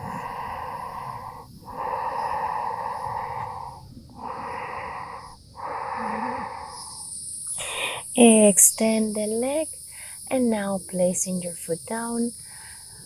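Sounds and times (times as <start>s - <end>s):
person breathing through nose: 0.0s - 7.0s, 7.6s - 8.1s, 9.9s - 10.3s, 12.4s - 13.0s
insects chirring: 0.0s - 13.0s.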